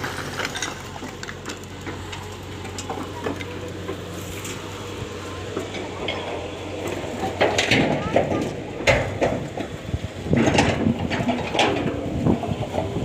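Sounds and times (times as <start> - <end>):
people talking: 2.8 - 3.9, 4.6 - 9.0
knocks and clatter: 5.5 - 13.0.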